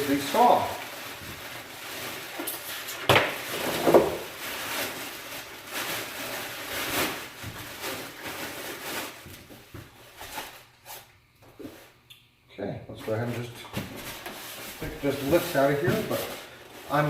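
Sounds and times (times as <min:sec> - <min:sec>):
cardboard rustling and scraping: 0:13.8 - 0:17.0.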